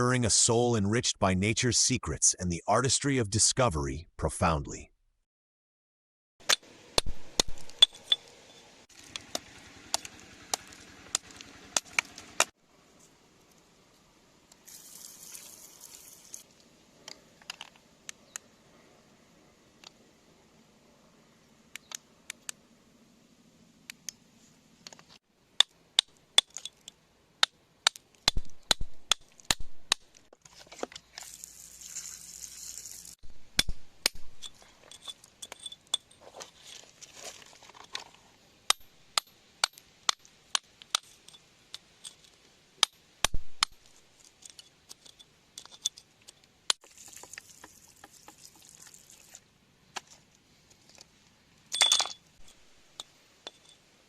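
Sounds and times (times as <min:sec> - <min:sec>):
glassy clinks of hard objects: 0:34.4 - 0:36.2.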